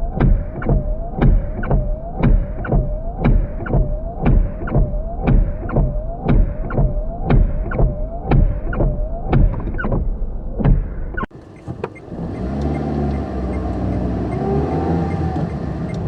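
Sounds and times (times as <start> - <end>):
repeating rhythmic sound: 0.0 - 10.1
car engine hum: 0.0 - 16.0.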